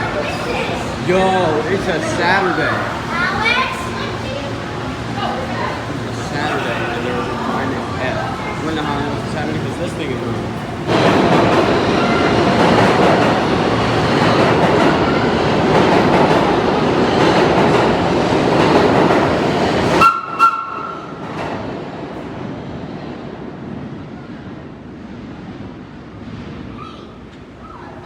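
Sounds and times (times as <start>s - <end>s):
subway train running: 0.0s - 28.0s.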